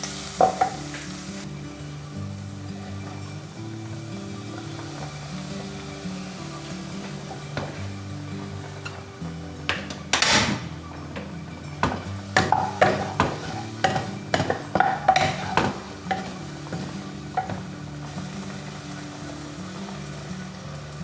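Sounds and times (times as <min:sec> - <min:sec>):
food sizzling: 0:00.0 - 0:21.0
utensil scraping frying pan: 0:00.0 - 0:21.0.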